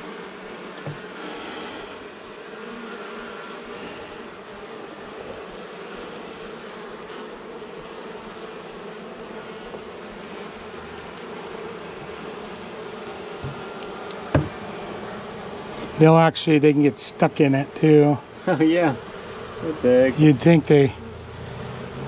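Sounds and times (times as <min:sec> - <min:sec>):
bees buzzing: 0:00.0 - 0:22.0
short knocks: 0:13.4 - 0:13.7, 0:14.3 - 0:14.7.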